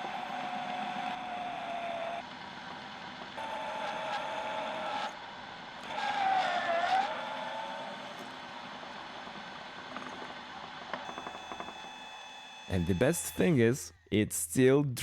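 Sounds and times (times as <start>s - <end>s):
drill press motor whining: 0.0s - 6.0s.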